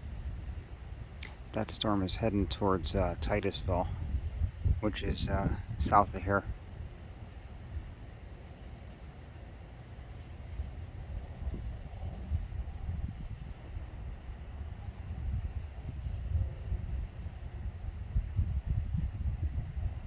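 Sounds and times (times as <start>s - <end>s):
low uneven rumble: 0.0s - 8.2s
night insects trilling: 0.0s - 20.0s.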